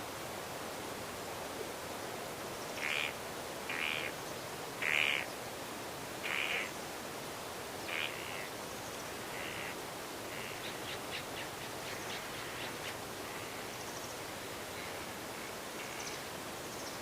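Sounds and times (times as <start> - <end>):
wind through trees: 0.0 - 17.0
wild birds calling: 2.8 - 4.2, 4.8 - 5.4, 6.2 - 6.8, 7.8 - 8.6, 9.3 - 15.0.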